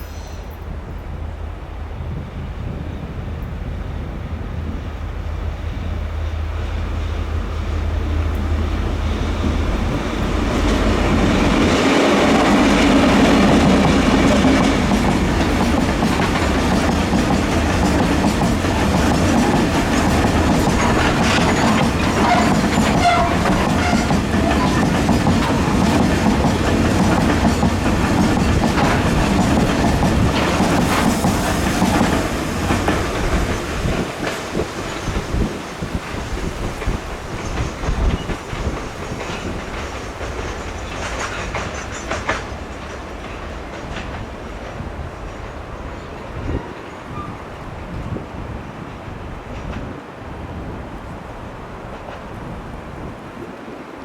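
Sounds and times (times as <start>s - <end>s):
locomotive low rumble: 0.0s - 27.1s
train wheels clickety-clack: 6.2s - 47.4s, 48.8s - 50.0s.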